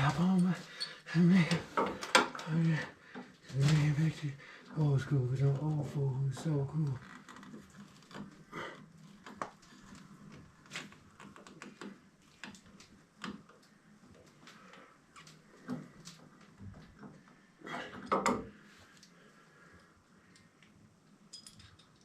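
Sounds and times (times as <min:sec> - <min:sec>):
clicks and knocks of handling: 0:01.5 - 0:02.5.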